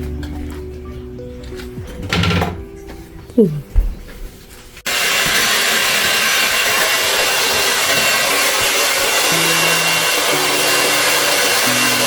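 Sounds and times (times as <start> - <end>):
hair dryer blowing: 4.9 - 12.0.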